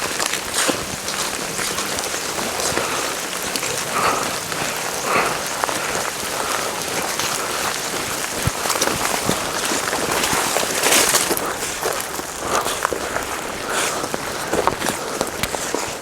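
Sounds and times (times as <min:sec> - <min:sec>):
rain pattering on tent: 0:00.0 - 0:16.0.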